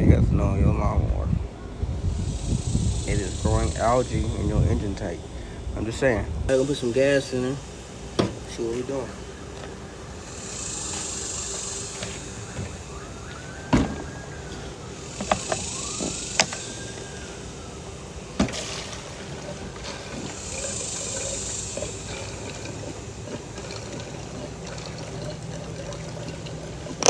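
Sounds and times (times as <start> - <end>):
gasoline pouring hiss: 0.0 - 27.0
knocks and clicks of gas can: 8.2 - 8.5.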